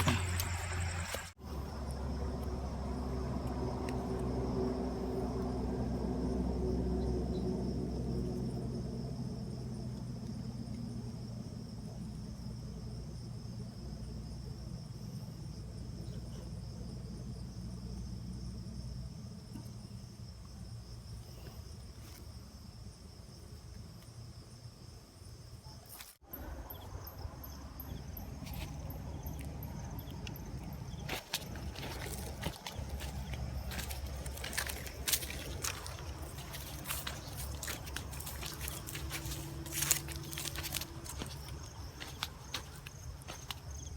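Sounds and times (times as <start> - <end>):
insects chirping drone: 0.0 - 43.9
low background rumble: 26.4 - 43.9.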